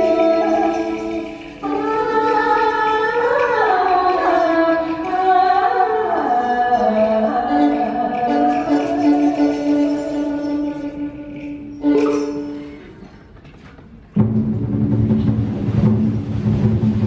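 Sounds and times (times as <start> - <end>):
person singing sliding melody: 0.0 - 12.8
held instrumental notes: 6.2 - 13.1.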